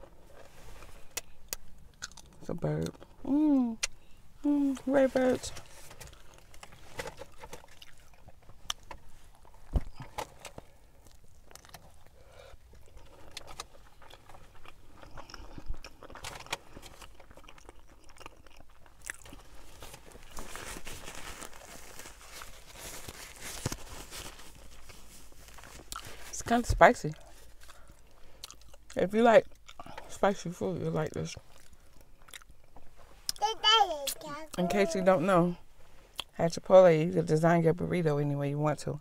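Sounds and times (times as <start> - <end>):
person chewing food: 1.1 - 3.1, 6.0 - 20.5, 24.5 - 26.2, 27.4 - 30.0, 31.4 - 33.4.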